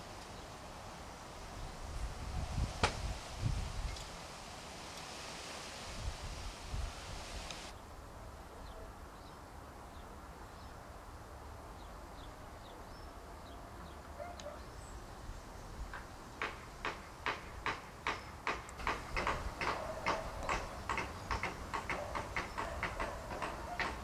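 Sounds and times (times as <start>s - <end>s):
small birds chirping: 11.8s - 24.0s.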